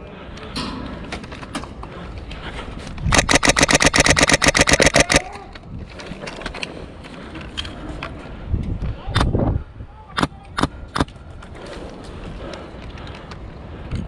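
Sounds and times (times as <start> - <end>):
airsoft gun full-auto burst: 3.1 - 5.2.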